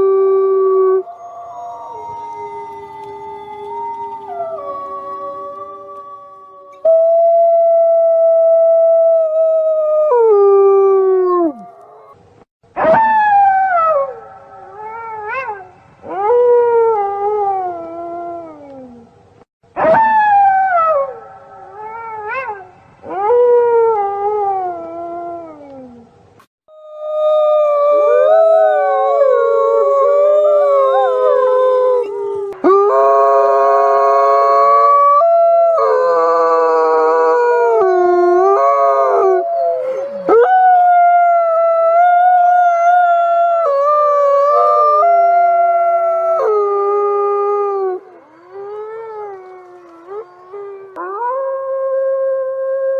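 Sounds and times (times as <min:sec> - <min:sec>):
wolves howling: 0:00.0 - 0:07.0, 0:26.7 - 0:52.6.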